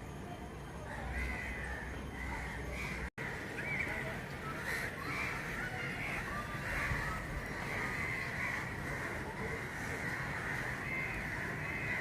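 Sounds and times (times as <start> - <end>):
birds chorus: 0.8 - 12.0.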